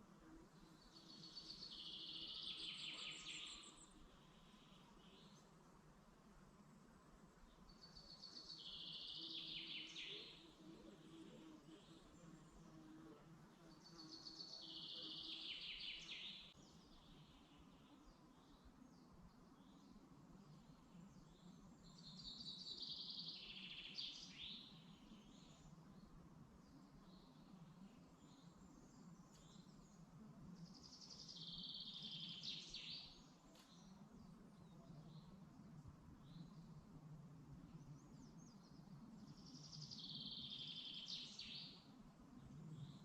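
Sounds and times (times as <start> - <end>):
faint bird chirps: 0.0 - 5.6, 7.4 - 43.0
faint low hum: 24.6 - 43.0.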